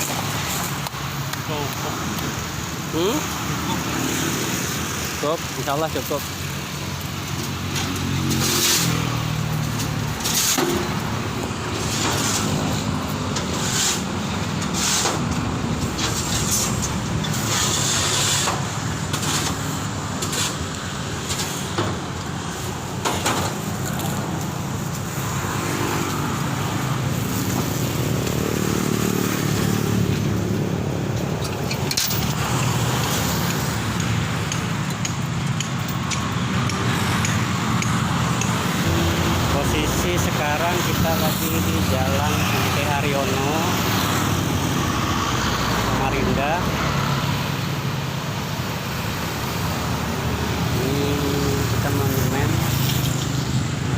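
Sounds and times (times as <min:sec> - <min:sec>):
traffic passing on a busy road: 0:00.0 - 0:53.9
short knocks and scrapes: 0:13.4 - 0:20.6.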